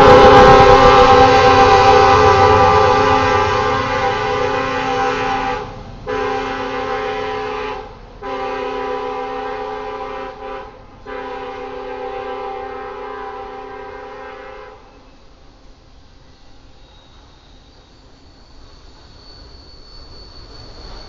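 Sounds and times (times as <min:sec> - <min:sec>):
locomotive air horn blasts: 0:00.0 - 0:15.0.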